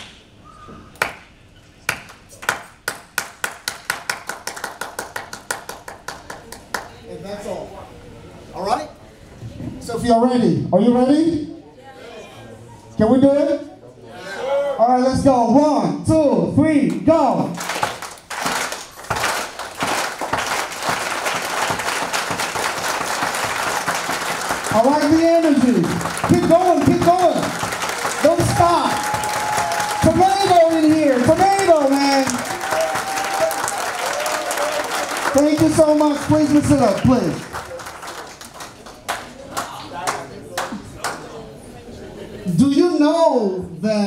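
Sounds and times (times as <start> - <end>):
person clapping hands: 1.0 - 1.3, 1.9 - 6.9, 17.6 - 41.2.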